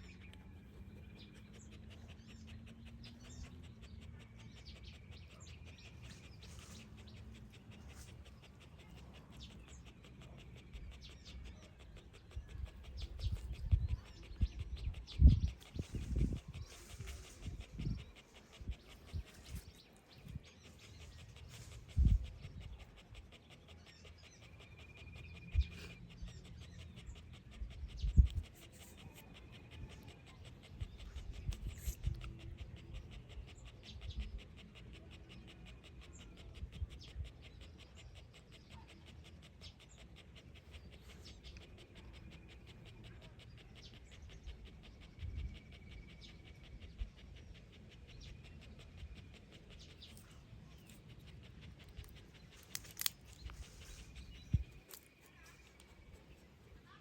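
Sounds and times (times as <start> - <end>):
dog panting: 0.0 - 57.0.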